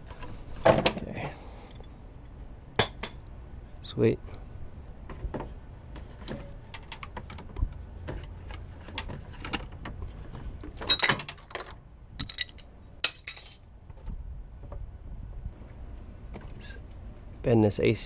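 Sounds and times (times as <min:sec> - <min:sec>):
metal tools clicking and knocking: 0:10.8 - 0:13.6
metal parts jingling: 0:10.8 - 0:13.7.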